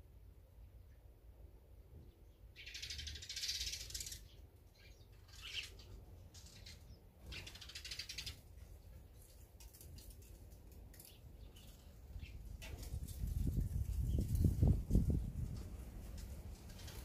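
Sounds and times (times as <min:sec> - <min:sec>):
songbird rattling calls: 0:02.6 - 0:08.4.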